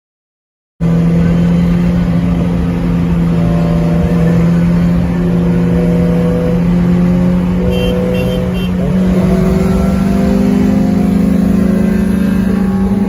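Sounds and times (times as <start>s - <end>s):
car engine droning: 0.8s - 13.0s.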